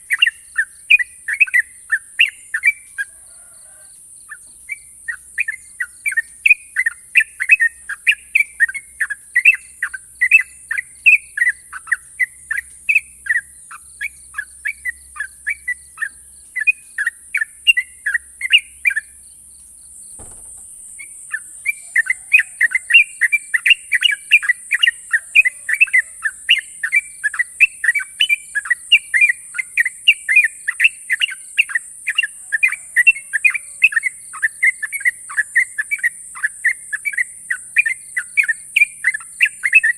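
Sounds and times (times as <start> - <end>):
bird chirping song: 0.0 - 39.9
soft knock: 20.2 - 20.9.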